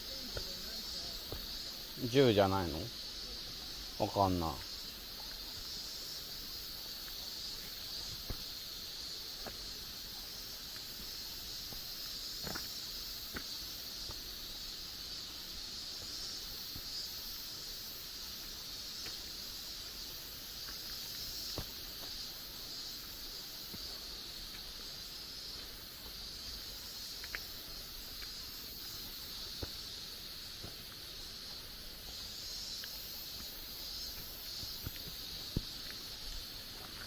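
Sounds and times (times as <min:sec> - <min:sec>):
insect chorus drone: 0:00.0 - 0:37.0
faint clicks: 0:27.2 - 0:27.5.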